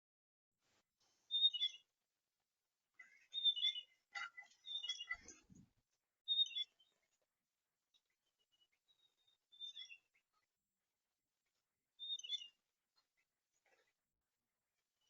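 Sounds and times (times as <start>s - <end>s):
small songbird chirping: 1.3s - 2.0s, 3.0s - 5.6s, 6.2s - 7.3s, 7.9s - 10.5s, 11.5s - 14.0s.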